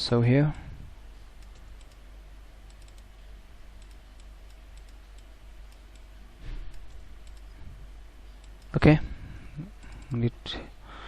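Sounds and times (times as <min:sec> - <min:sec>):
steady low hum: 0:00.0 - 0:11.0
keyboard typing clicks: 0:01.4 - 0:02.0, 0:02.7 - 0:03.1, 0:03.8 - 0:06.1, 0:06.7 - 0:07.6, 0:08.4 - 0:08.8.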